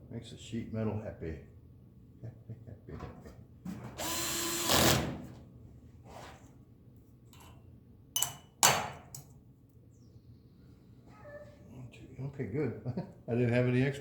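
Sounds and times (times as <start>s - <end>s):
drill driving screw into metal: 4.0s - 5.2s.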